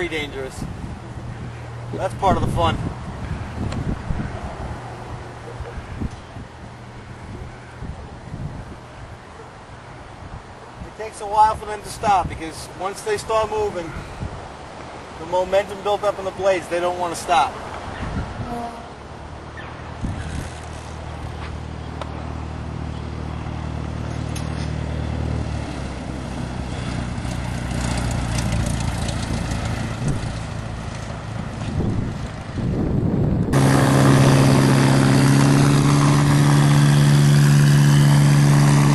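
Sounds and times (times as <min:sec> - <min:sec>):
wind noise: 0:00.0 - 0:09.2, 0:13.8 - 0:14.8, 0:17.8 - 0:18.9, 0:19.7 - 0:21.5, 0:23.3 - 0:38.9.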